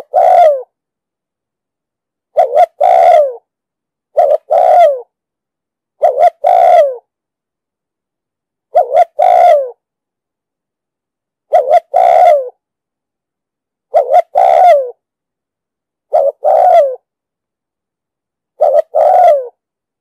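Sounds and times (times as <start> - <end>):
dove cooing: 0.0 - 0.7, 2.3 - 3.5, 4.1 - 5.1, 6.0 - 7.1, 8.7 - 9.8, 11.5 - 12.6, 13.9 - 15.0, 16.1 - 17.1, 18.6 - 19.6.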